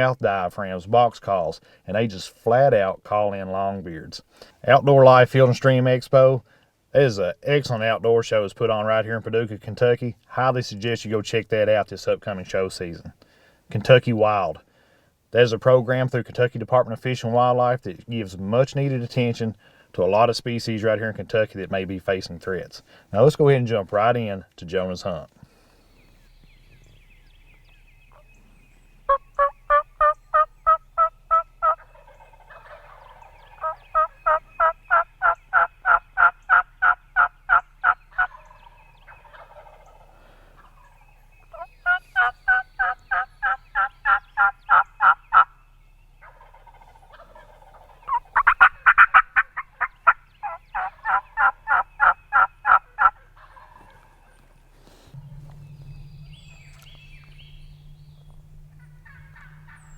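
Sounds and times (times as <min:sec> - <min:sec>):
turkey yelping: 0:29.0 - 0:45.6, 0:46.2 - 0:54.6, 0:56.8 - 0:59.9.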